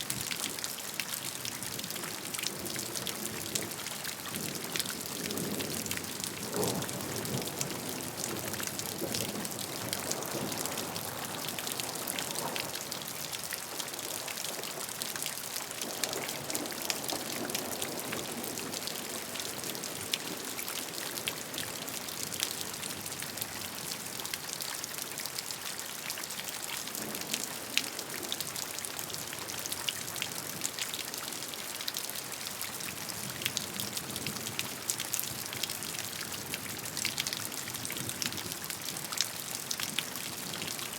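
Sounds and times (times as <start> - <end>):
steady rain hiss: 0.0 - 24.4.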